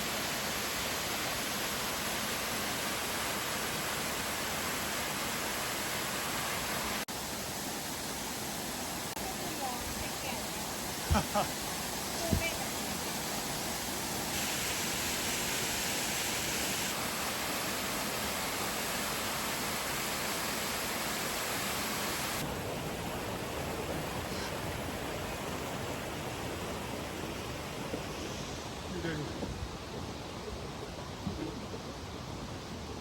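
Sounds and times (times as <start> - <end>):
flowing water rushing: 0.0 - 33.0.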